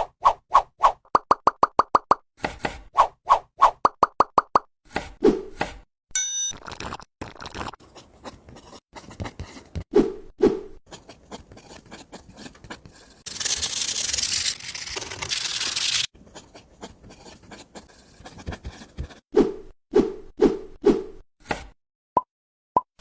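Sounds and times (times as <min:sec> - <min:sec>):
rubbing and scraping: 0:10.8 - 0:19.3.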